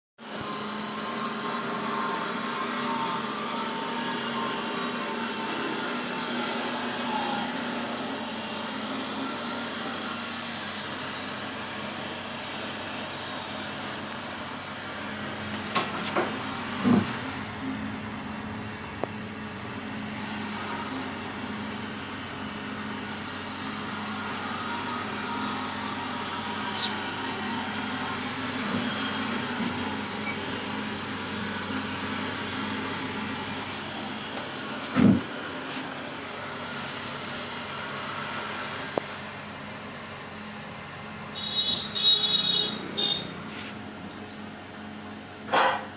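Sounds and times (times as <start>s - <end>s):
machine hissing and humming: 0.2s - 45.9s.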